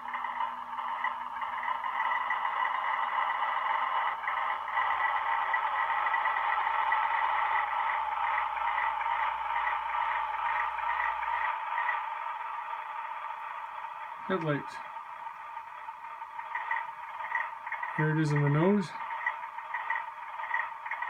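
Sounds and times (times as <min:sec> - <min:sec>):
low hum: 0:00.0 - 0:21.0
model train engine sound from speaker: 0:00.0 - 0:21.0.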